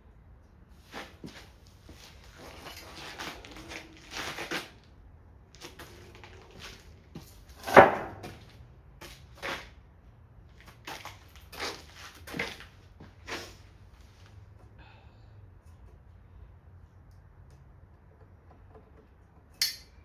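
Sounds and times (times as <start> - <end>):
light knocks of timber and tools: 6.6 - 9.6
sharp loud knock: 7.7 - 8.3.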